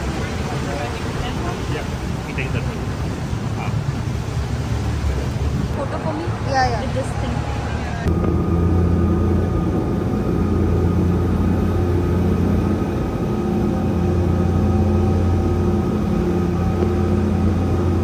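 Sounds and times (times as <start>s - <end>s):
speedboat engine running: 0.0s - 18.0s.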